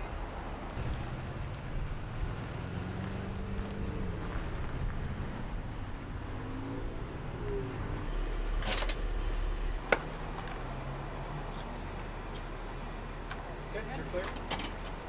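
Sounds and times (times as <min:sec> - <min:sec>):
vehicle engine and road noise: 0:00.0 - 0:15.0
rattle of clicks: 0:07.4 - 0:10.7.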